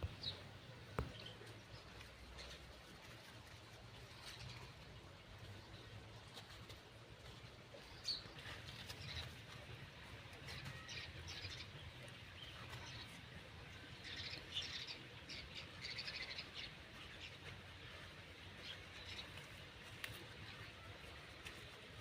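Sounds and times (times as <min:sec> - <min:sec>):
small birds chirping: 0:00.0 - 0:01.3.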